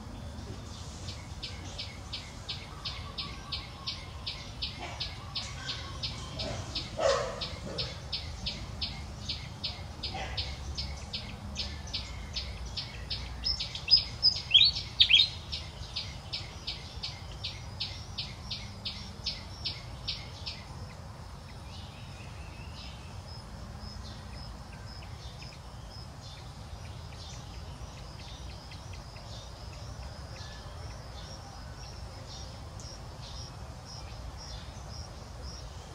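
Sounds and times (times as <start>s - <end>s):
sweeping bird call: 0.0s - 20.8s
bird chirping rapidly: 0.9s - 20.7s.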